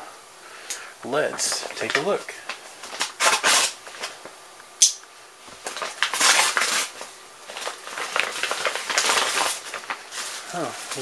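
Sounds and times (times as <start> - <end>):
packaging rustling and scraping: 1.3 - 4.3, 5.4 - 11.0.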